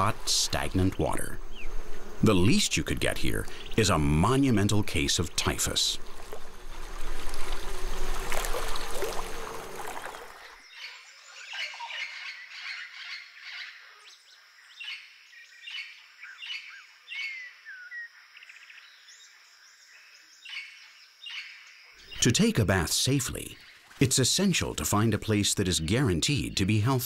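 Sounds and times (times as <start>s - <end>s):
wild birds chirping and squawking: 0.0s - 6.8s, 8.6s - 22.3s.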